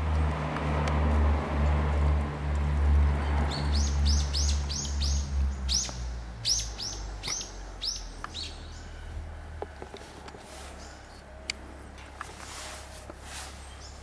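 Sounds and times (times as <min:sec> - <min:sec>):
small bird chirping: 0:03.5 - 0:09.0.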